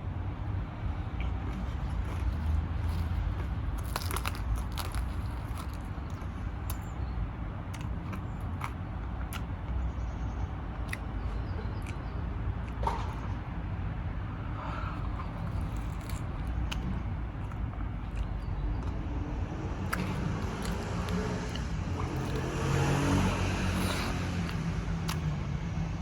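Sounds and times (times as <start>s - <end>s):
steady low hum: 0.0s - 26.0s
person chewing food: 1.1s - 6.9s, 7.7s - 9.6s, 10.8s - 13.2s, 14.8s - 25.4s.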